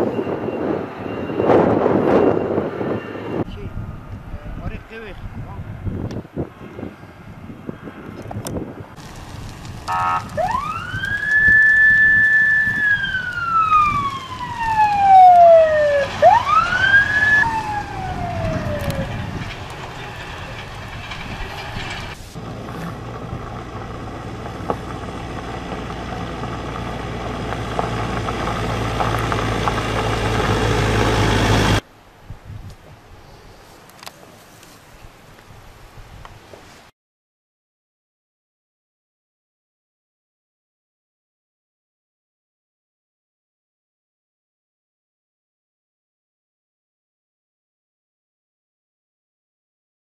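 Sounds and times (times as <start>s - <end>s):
emergency siren wailing: 0.0s - 4.0s, 9.9s - 20.8s
low engine rumble: 2.7s - 31.9s.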